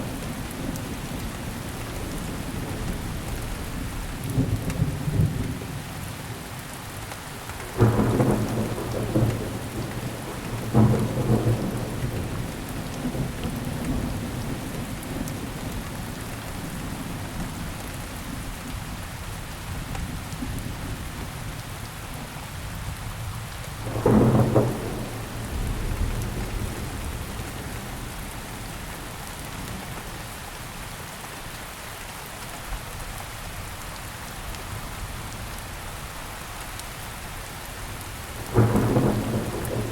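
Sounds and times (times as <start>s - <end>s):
heavy rain: 0.0s - 39.9s
thunder rolling: 23.8s - 28.3s, 38.4s - 39.9s.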